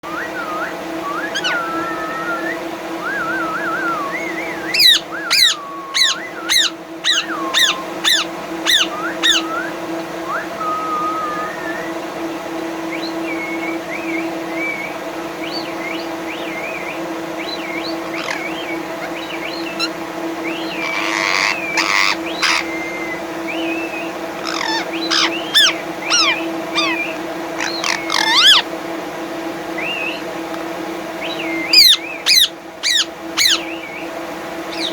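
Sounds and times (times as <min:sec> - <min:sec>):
steady hum: 0:00.0 - 0:34.9
parrot whistles and chirps: 0:00.1 - 0:11.9, 0:19.8 - 0:27.0, 0:27.6 - 0:28.6, 0:31.4 - 0:33.9
parrot squawks: 0:04.7 - 0:09.5, 0:18.0 - 0:19.2, 0:20.7 - 0:23.0, 0:24.4 - 0:28.7, 0:31.7 - 0:33.7.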